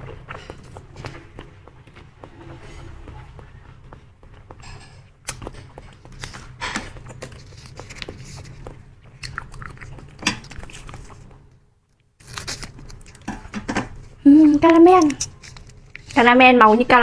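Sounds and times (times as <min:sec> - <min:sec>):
wet chewing: 0:00.0 - 0:02.1, 0:04.3 - 0:13.6, 0:14.5 - 0:16.2
plastic packet rustling: 0:06.0 - 0:11.3, 0:12.2 - 0:13.4, 0:14.6 - 0:16.4
scissors cutting plastic: 0:12.2 - 0:13.8, 0:14.6 - 0:16.2.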